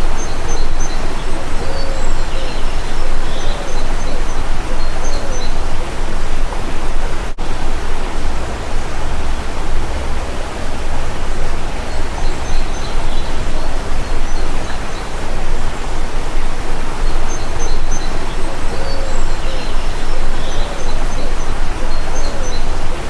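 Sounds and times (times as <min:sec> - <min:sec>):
faint high bird chirps: 0:00.0 - 0:06.4, 0:10.4 - 0:23.0
stream water rushing: 0:00.0 - 0:23.0.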